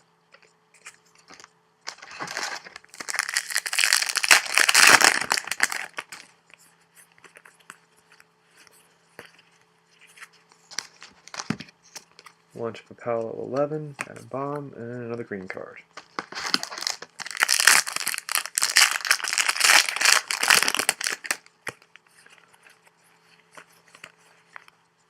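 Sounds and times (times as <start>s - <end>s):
wrapper crinkling: 1.3s - 6.3s, 16.0s - 22.0s.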